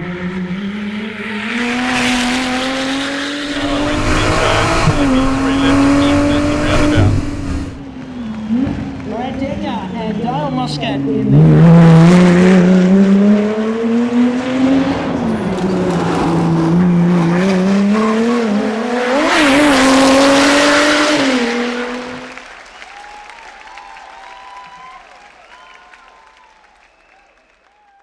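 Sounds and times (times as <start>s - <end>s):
rally car engine running hard: 0.1s - 7.8s.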